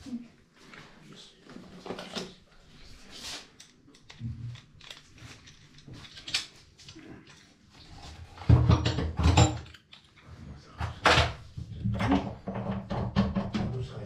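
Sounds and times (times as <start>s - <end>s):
handling clicks and rustles: 3.5s - 7.8s.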